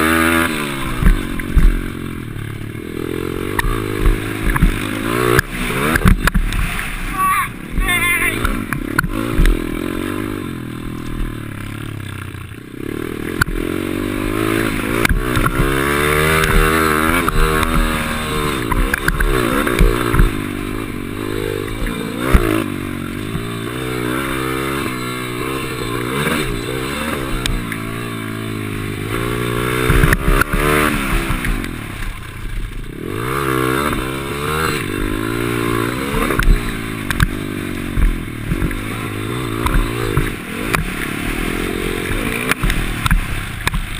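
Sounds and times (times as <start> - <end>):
small motorbike engine revving: 0.0 - 43.9
knocks and clatter: 3.5 - 6.9.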